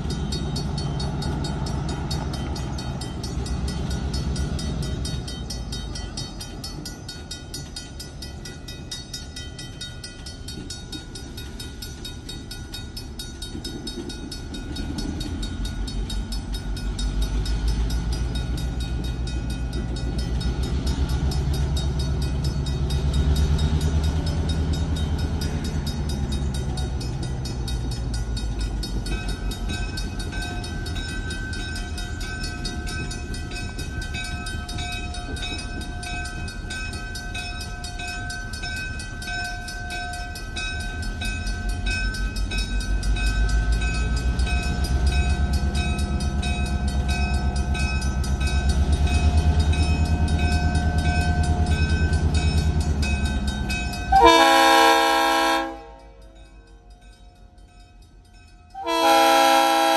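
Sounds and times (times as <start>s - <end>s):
diesel locomotive engine running: 0.0s - 59.9s
railroad crossing bell ringing: 0.0s - 59.9s
train horn chord: 54.1s - 56.2s, 58.8s - 59.9s.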